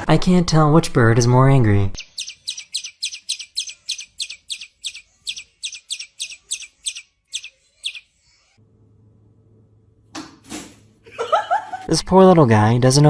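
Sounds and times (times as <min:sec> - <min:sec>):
bird alarm calls: 0:02.0 - 0:08.4.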